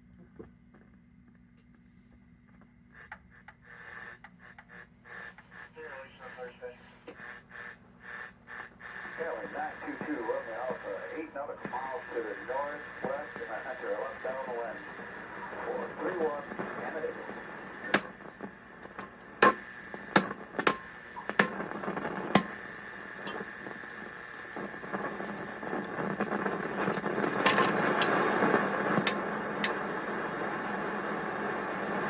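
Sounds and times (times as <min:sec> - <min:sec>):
radio static hiss: 0:02.7 - 0:32.0
sharp crackles: 0:17.9 - 0:30.3.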